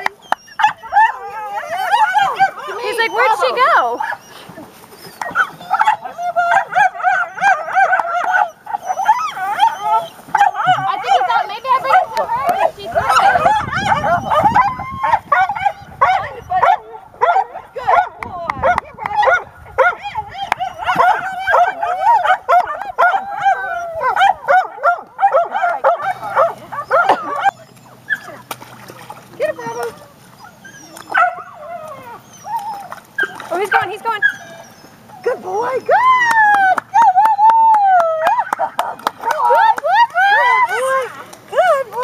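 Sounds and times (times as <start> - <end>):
puppy whining: 0.0 - 15.2, 25.9 - 28.5, 29.4 - 36.0.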